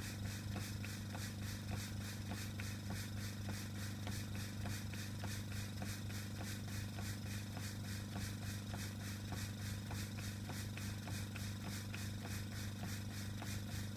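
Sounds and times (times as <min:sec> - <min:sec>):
air compressor humming: 0:00.0 - 0:13.9.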